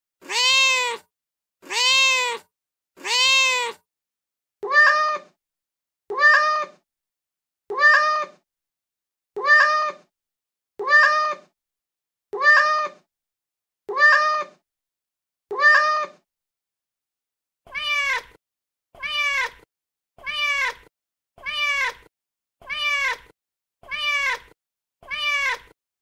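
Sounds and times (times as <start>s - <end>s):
cat meowing: 0.2s - 3.8s, 4.6s - 5.4s, 6.1s - 6.8s, 7.7s - 8.4s, 9.4s - 10.1s, 10.8s - 11.5s, 12.4s - 13.1s, 13.9s - 14.6s, 15.5s - 16.2s, 17.7s - 18.4s, 19.0s - 25.8s.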